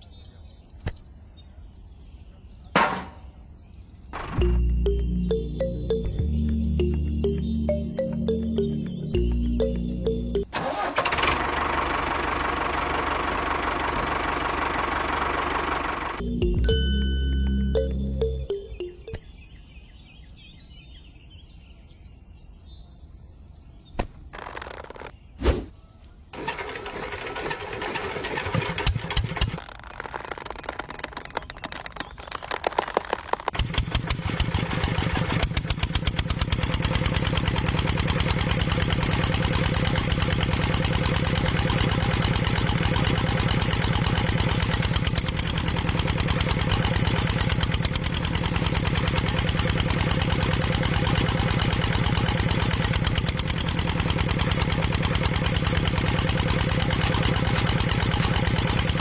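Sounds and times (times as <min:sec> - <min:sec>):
engine cranking and idling: 0:04.2 - 0:19.2, 0:26.3 - 0:59.0.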